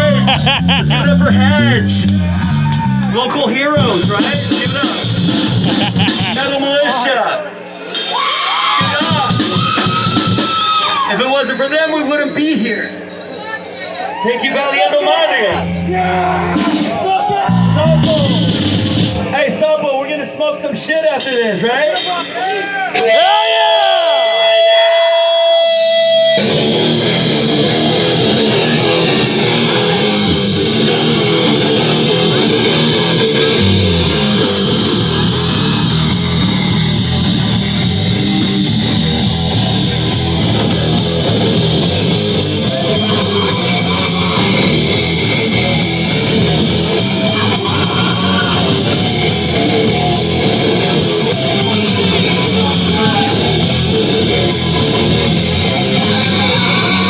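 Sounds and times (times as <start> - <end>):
heavy metal band playing: 0.0 - 11.8, 15.0 - 57.0
steady held tone: 15.5 - 19.3, 25.7 - 57.0.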